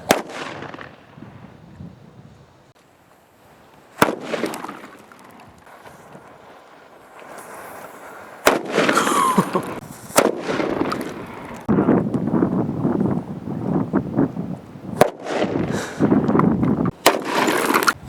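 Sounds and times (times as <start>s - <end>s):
firecrackers banging: 0.0s - 1.6s, 3.8s - 12.0s, 14.9s - 18.0s.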